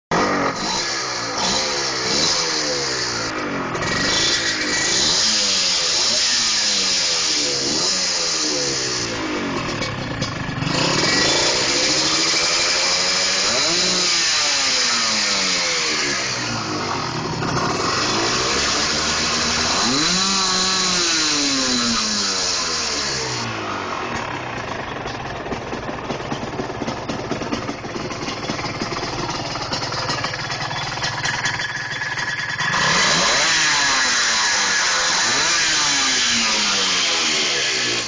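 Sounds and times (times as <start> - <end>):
two-stroke engine revving: 0.1 - 38.0.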